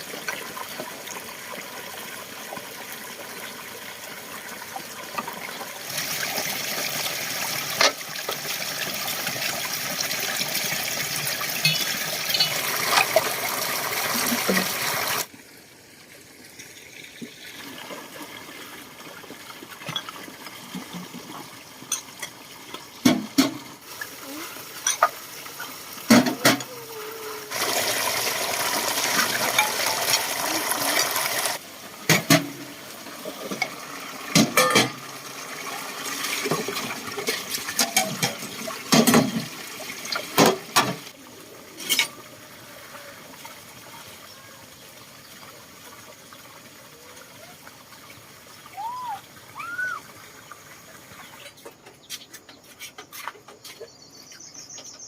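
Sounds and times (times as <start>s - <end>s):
water pouring and splashing: 0.0s - 53.9s
sharp knocks and clatter: 23.0s - 23.7s.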